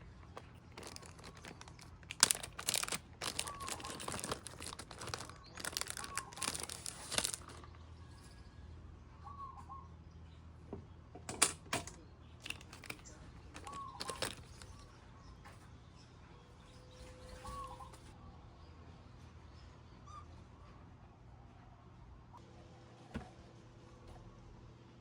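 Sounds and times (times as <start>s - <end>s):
crinkling handling noise: 0.0s - 7.8s, 11.3s - 14.9s, 17.2s - 18.1s.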